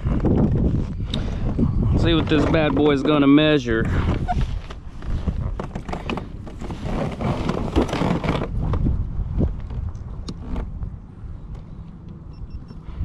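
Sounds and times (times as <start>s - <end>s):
wind buffeting microphone: 0.0s - 13.0s
knocks and clatter of fish handling: 2.2s - 8.9s.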